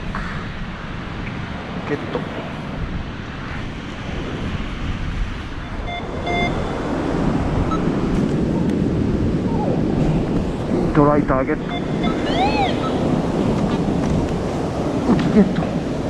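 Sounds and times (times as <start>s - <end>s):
wind buffeting microphone: 0.0s - 16.0s
metal detector beeps: 5.6s - 6.7s, 11.6s - 13.0s.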